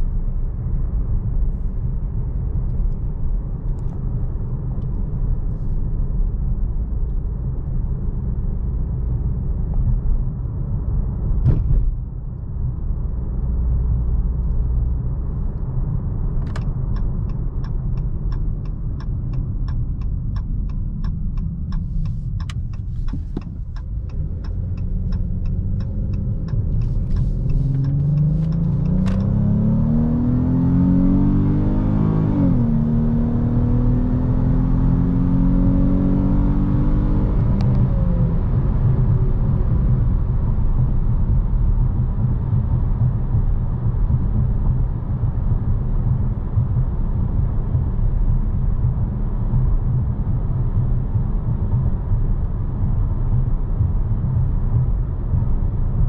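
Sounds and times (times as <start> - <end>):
low road rumble: 0.0 - 56.0
car engine accelerating: 8.3 - 56.0
turn signal ticking: 13.9 - 30.6, 35.5 - 56.0.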